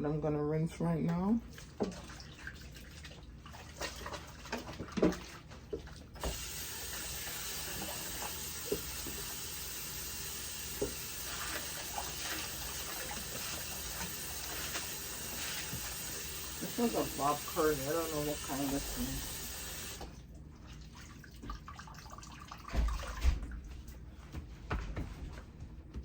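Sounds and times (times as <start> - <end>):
water tap running: 5.6 - 20.3.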